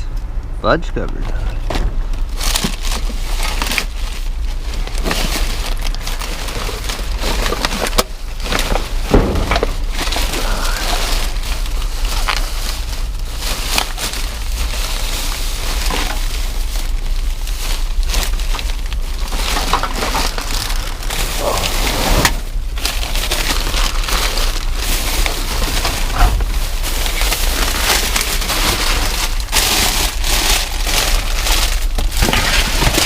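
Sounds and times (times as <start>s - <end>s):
plastic crackling and rustling: 1.6s - 33.0s
loud knocks: 9.1s - 9.7s.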